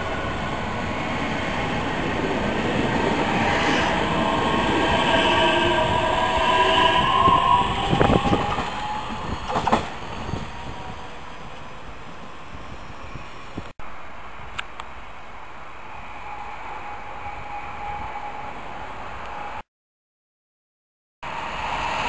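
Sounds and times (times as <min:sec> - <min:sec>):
train traction motors whining: 0:00.0 - 0:12.2
wheels clacking over rail joints: 0:07.8 - 0:11.0.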